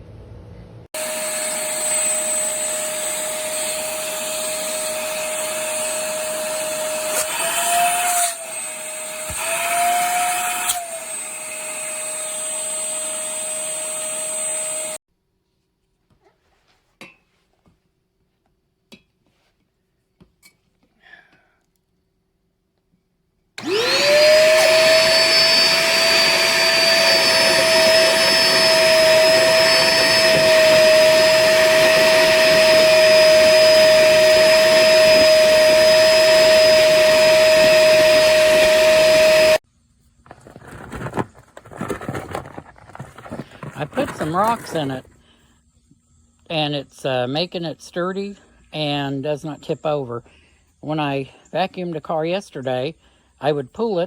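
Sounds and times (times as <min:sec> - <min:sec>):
vacuum motor whine: 0:01.0 - 0:15.0, 0:23.6 - 0:39.6, 0:43.2 - 0:45.1.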